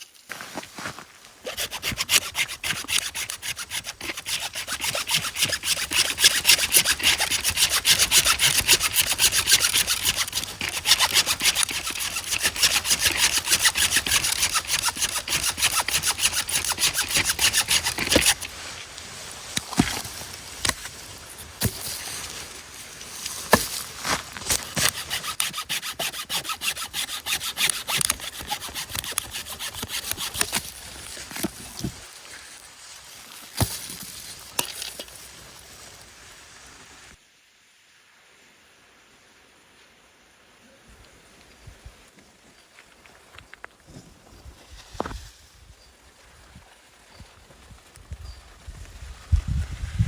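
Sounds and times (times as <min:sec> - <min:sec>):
saw cutting wood: 0:01.5 - 0:18.8, 0:19.5 - 0:22.5, 0:23.2 - 0:32.0, 0:33.5 - 0:35.2.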